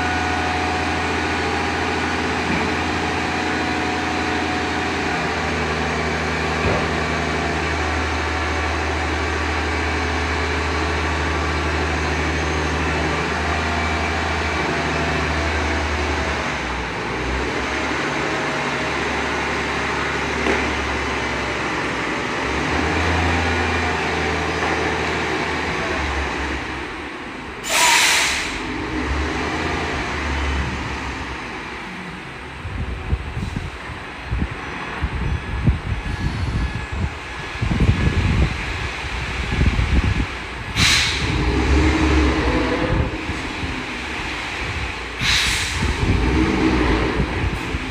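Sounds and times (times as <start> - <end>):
truck diesel engine droning: 0.0 - 47.9
air brakes hissing: 27.6 - 28.7, 40.7 - 41.5, 45.1 - 46.1.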